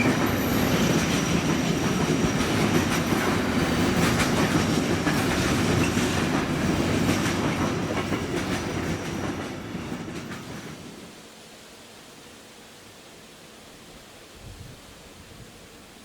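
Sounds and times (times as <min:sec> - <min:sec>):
train wheels clicking over rail joints: 0:00.0 - 0:11.0.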